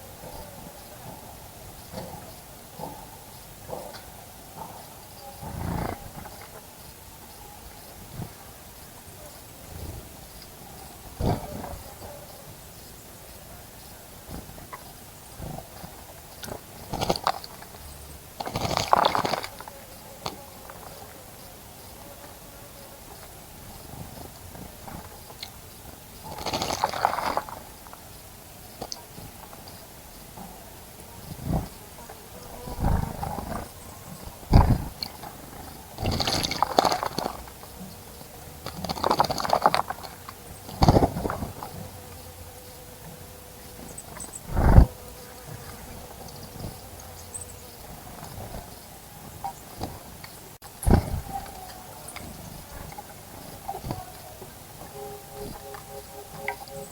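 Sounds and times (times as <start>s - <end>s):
bird splashing in bird bath: 16.5s - 17.8s, 18.4s - 20.8s, 26.3s - 28.0s, 36.0s - 37.7s, 38.6s - 41.6s
bird splashing in water: 26.3s - 27.6s.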